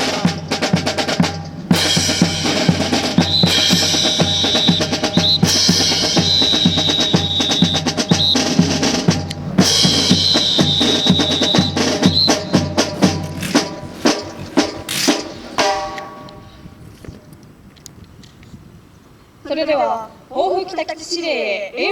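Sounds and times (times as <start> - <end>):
snare and bass drums: 0.0 - 16.2
brass band marching music: 0.0 - 16.4.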